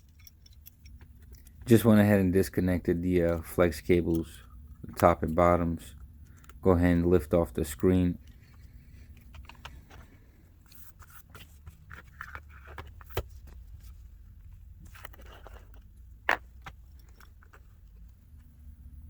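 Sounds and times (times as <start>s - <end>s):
small tools clicking and scraping: 0.0s - 1.8s, 3.2s - 6.7s, 14.8s - 18.2s
low steady hum: 0.0s - 19.0s.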